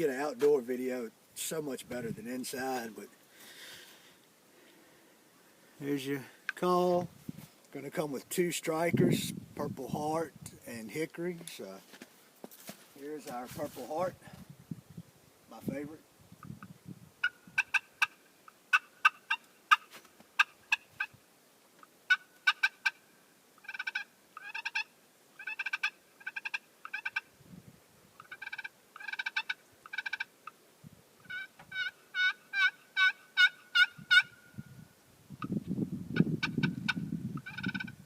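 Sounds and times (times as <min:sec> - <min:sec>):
turkey call yelps: 0:17.2 - 0:21.2, 0:22.1 - 0:23.0, 0:23.6 - 0:27.2, 0:28.2 - 0:30.6, 0:31.2 - 0:34.6, 0:36.4 - 0:38.0.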